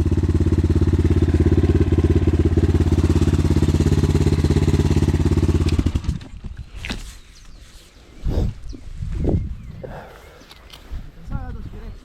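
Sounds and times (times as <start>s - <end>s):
engine running down to a stop: 0.0s - 6.4s
motorcycle engine idling: 0.0s - 6.5s.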